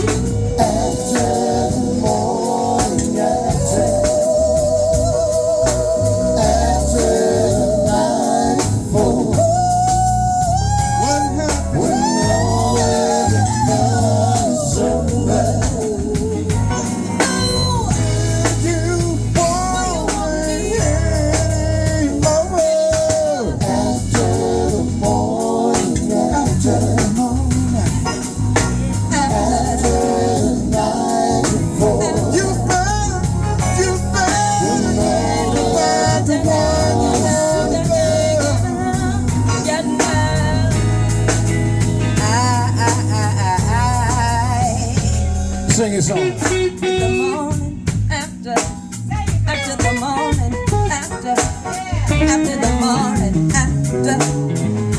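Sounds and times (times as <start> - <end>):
blues band playing: 0.0 - 54.9
person singing: 42.2 - 54.6.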